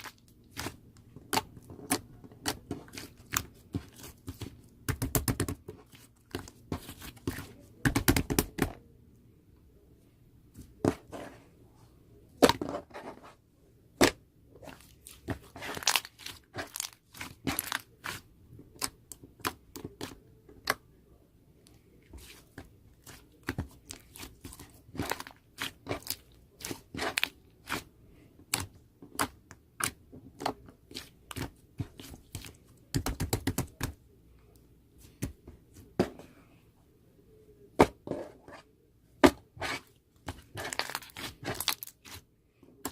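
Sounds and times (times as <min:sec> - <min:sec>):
handling crackles and taps: 0:42.6 - 0:42.9.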